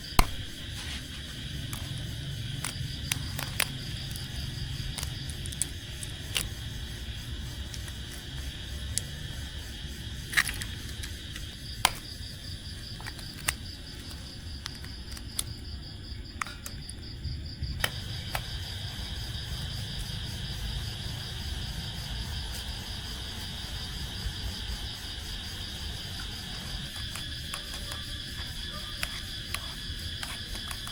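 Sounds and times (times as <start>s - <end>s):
insect chorus trilling: 0.0s - 30.9s
sharp clicks and taps: 11.8s - 12.1s.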